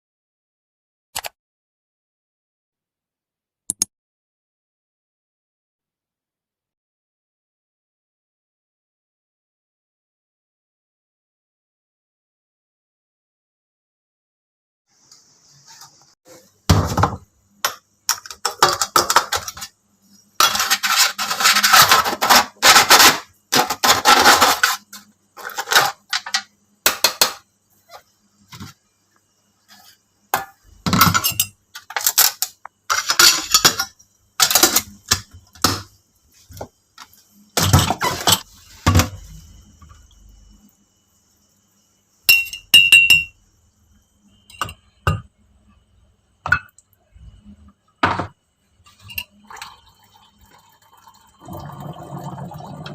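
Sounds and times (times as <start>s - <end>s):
dishes and utensils clattering: 16.7s - 19.8s, 20.4s - 28.0s, 29.7s - 35.9s, 37.6s - 39.2s, 48.9s - 49.7s
scraping and rattling: 20.4s - 26.3s.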